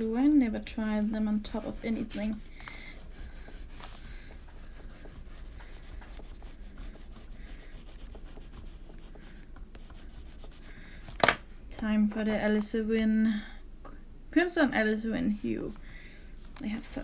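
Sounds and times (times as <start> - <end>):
crayon scraping on paper: 0.0 - 10.7.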